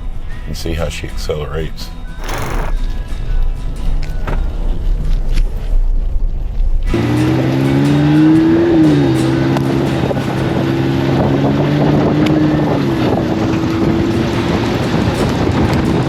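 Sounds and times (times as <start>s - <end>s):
truck engine accelerating: 2.2s - 2.8s.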